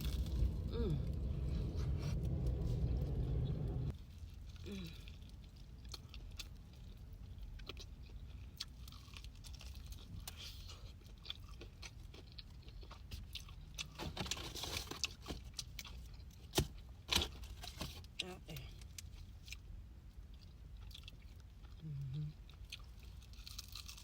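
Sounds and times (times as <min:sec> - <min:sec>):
person chewing with smacking: 0:04.2 - 0:16.6, 0:20.2 - 0:24.0.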